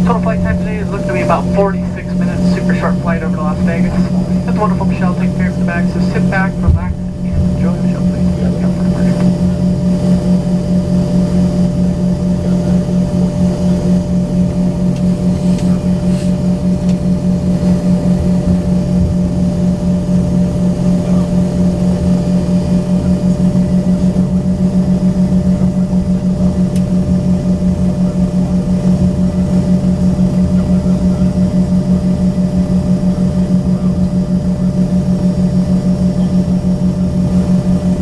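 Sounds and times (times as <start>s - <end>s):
jet engines idling in cabin: 0.0s - 38.0s.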